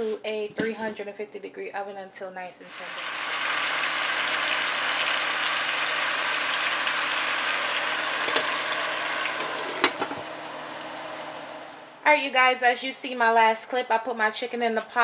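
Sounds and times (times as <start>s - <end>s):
chicken sizzling in a pot: 2.7s - 11.7s.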